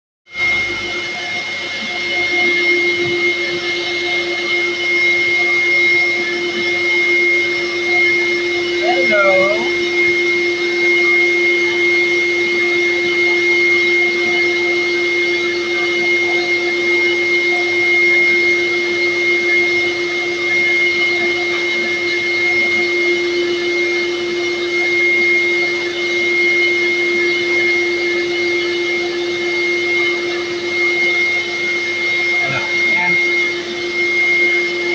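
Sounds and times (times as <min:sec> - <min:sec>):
electric grooming tool motor whining: 0:00.4 - 0:34.9.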